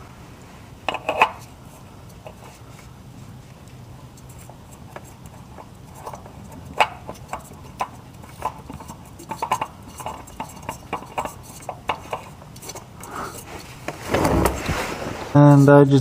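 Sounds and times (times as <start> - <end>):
oil filter clicks and knocks: 0.9 - 1.5, 3.6 - 12.8.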